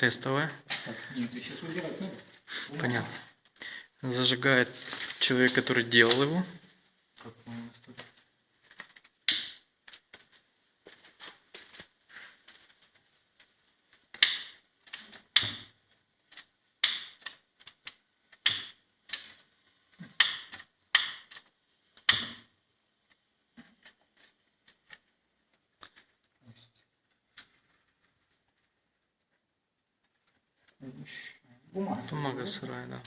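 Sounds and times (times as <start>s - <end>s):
paper and kindling rustling: 4.2s - 6.6s.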